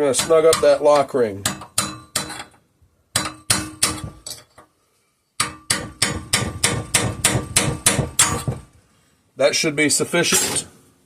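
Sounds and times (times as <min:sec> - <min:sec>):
hammer tapping a metal punch: 0:01.5 - 0:02.5, 0:03.2 - 0:04.4, 0:05.4 - 0:08.6.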